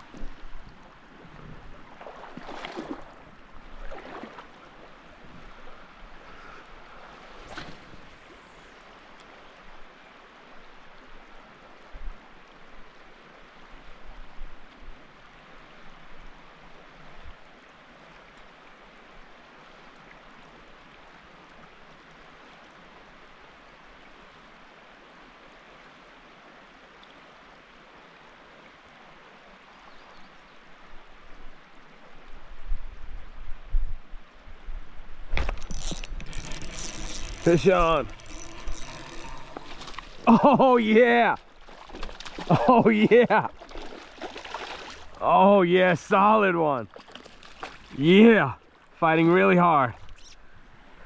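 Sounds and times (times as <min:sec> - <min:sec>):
river water rushing: 0:00.0 - 0:13.9, 0:35.4 - 0:50.0
low handling noises: 0:35.3 - 0:40.4.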